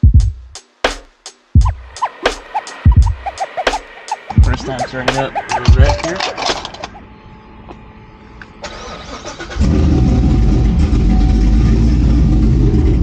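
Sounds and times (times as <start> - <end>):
car engine cranking: 8.6 - 13.0.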